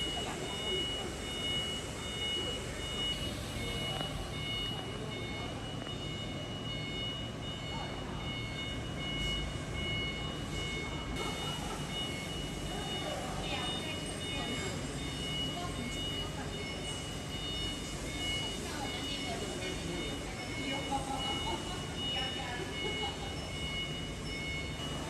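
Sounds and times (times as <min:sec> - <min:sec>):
high-pitched beeping: 0:00.0 - 0:25.0
machinery low hum: 0:00.0 - 0:25.0.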